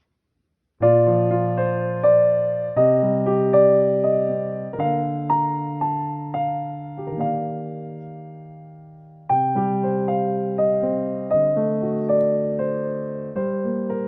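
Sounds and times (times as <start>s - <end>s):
electric piano playing gentle chords: 0.8s - 14.0s.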